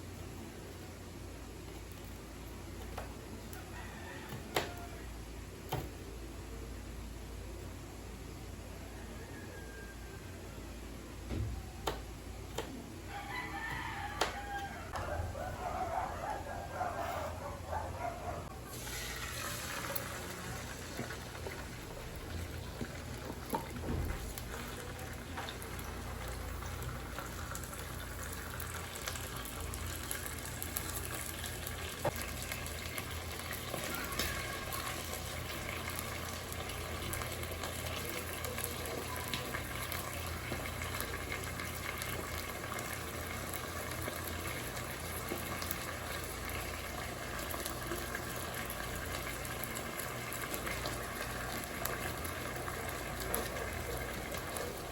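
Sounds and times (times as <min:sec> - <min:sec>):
water boiling in a pot: 0:18.6 - 0:54.9.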